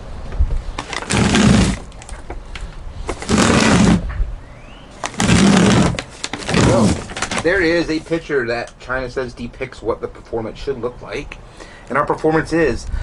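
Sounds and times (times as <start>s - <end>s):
cardboard scraping and rustling: 0.7s - 2.4s, 3.0s - 4.2s, 5.0s - 8.3s.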